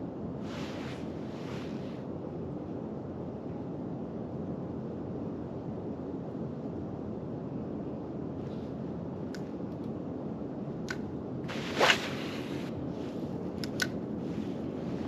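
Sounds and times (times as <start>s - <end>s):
wind: 0.0s - 15.0s
light clicks: 9.2s - 10.0s, 10.8s - 11.1s, 13.6s - 14.0s
short whoosh: 11.5s - 12.7s.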